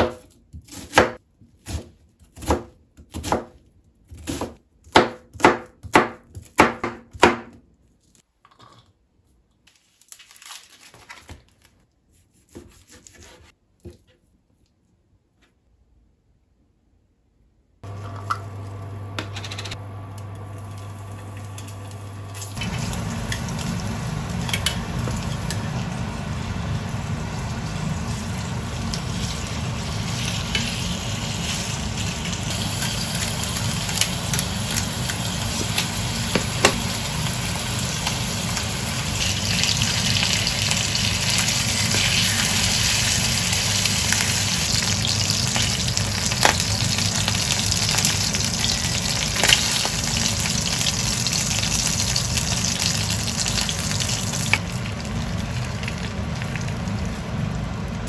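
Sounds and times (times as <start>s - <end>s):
steady low hum: 17.8s - 38.6s
chicken sizzling in a frying pan: 17.8s - 58.0s.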